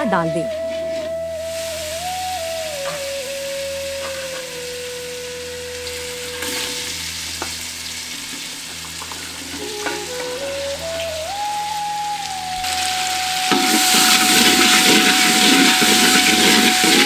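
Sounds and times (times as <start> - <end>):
soft background melody: 0.0 - 17.0
onions sizzling in hot oil: 1.5 - 5.2, 5.8 - 10.5, 12.6 - 17.0.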